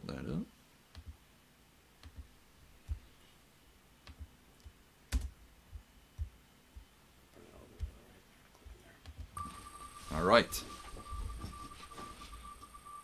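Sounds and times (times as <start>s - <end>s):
computer keyboard and mouse clicks: 0.9s - 1.2s, 2.0s - 2.3s, 4.0s - 5.4s.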